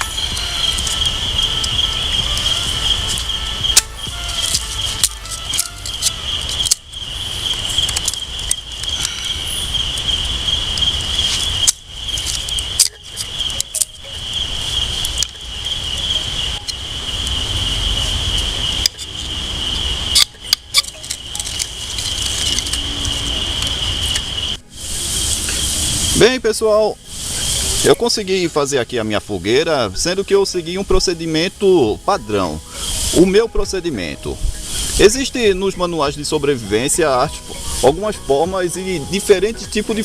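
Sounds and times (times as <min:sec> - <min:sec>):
low rumble: 0:00.0 - 0:12.8
insects droning: 0:00.0 - 0:40.0.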